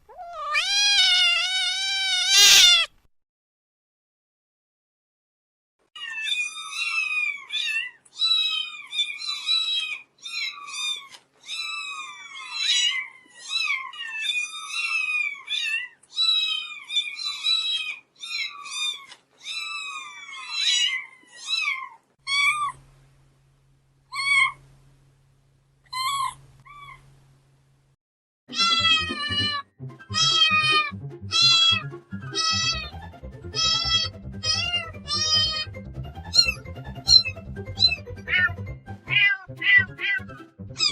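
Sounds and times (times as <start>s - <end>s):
kittens meowing: 0.0s - 2.9s, 30.2s - 32.9s, 33.6s - 35.7s, 36.3s - 40.2s
louder meows: 0.1s - 2.9s.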